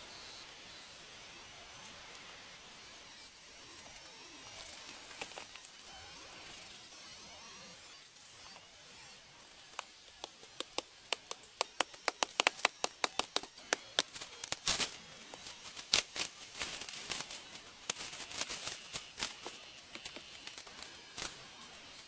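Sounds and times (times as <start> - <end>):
sharp taps: 10.2 - 14.1.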